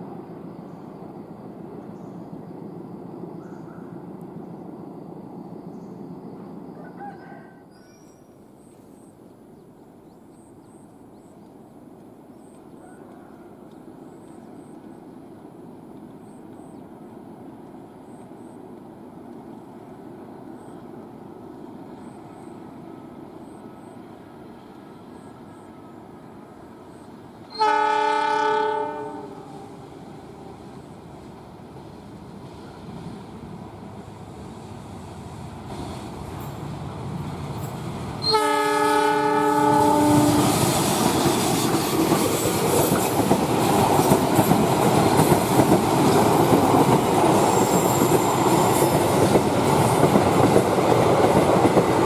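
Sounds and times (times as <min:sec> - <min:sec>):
train rumble: 0:00.0 - 0:07.6, 0:08.3 - 0:52.0
locomotive horn blast: 0:27.5 - 0:29.9, 0:38.2 - 0:40.7.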